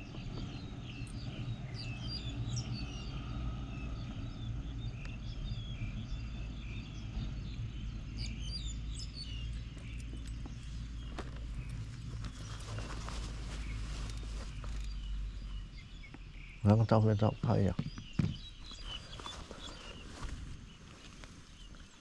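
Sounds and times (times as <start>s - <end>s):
steady low rumble: 0.0s - 17.4s
birds chirping: 0.0s - 22.0s.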